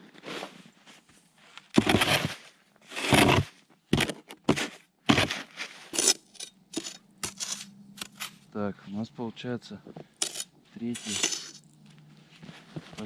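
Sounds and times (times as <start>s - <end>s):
shovel digging into snow: 1.7s - 8.4s, 10.2s - 11.6s.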